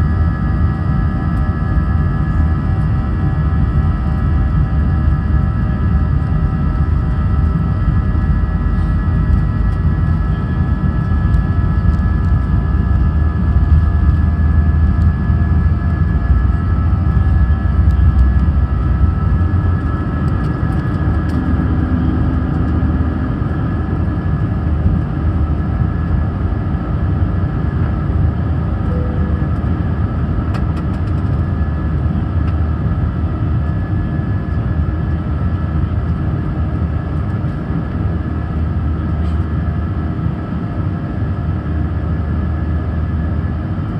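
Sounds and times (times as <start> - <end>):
jet cabin rumble: 0.0 - 43.9
whining engine tones: 28.7 - 30.2.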